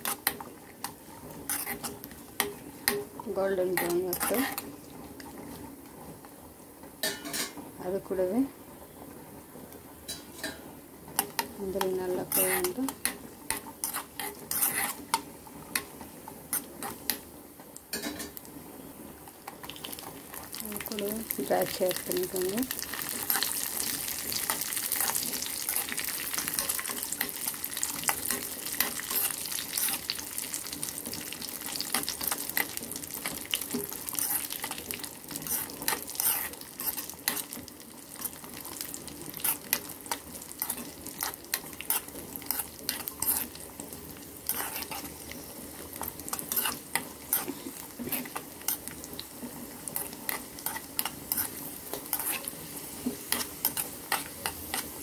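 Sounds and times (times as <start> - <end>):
metal spoon scraping a pan: 0.0 - 4.7, 7.0 - 7.6, 10.1 - 15.9, 16.5 - 17.2, 21.5 - 43.6, 44.4 - 49.0, 49.8 - 55.0
nuts sizzling in a pan: 0.0 - 55.0.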